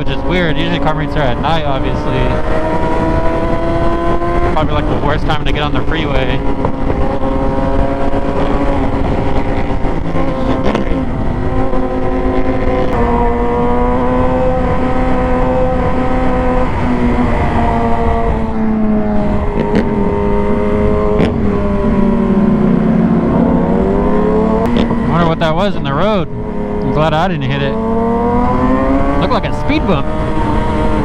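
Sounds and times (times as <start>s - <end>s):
heavy wind noise: 0.0s - 31.0s
motorcycle engine cruising: 0.0s - 31.0s
sharp knocks over road bumps: 21.2s - 21.4s.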